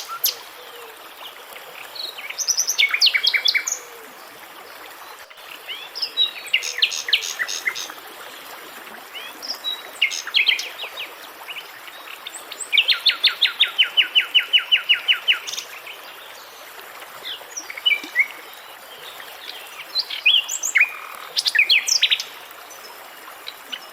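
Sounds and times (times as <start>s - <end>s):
running water hissing: 0.0s - 11.8s
songbirds singing: 5.0s - 7.9s.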